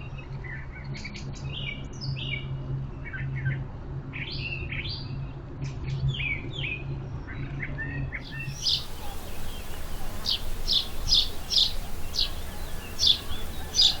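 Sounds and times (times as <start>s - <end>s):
small birds chirping: 8.2s - 14.0s.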